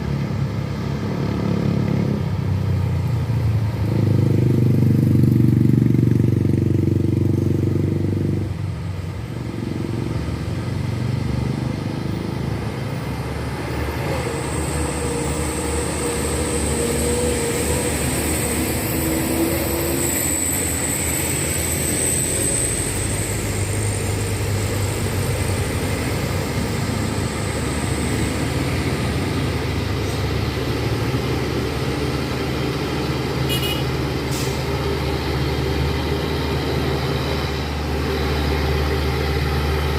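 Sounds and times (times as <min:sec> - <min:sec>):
truck engines running: 0:00.0 - 0:39.9
truck passing close: 0:00.0 - 0:39.9
thin high whine: 0:12.9 - 0:39.9.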